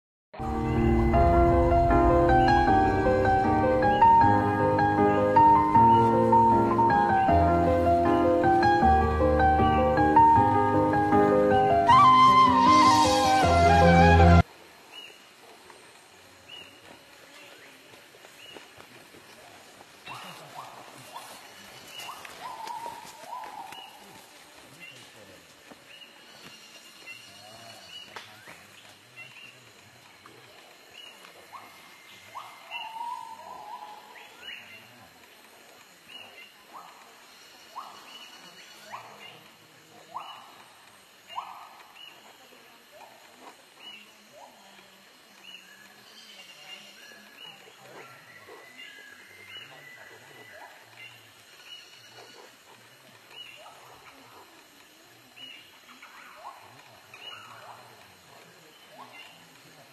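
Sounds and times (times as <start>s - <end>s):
birds chirping: 0.4s - 15.3s
steady whistled bird note: 11.5s - 14.4s.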